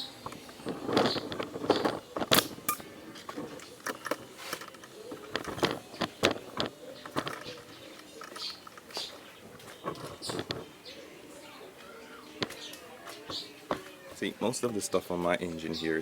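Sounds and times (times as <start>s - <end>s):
plastic parts clicking and knocking: 0.2s - 10.7s, 12.4s - 14.0s.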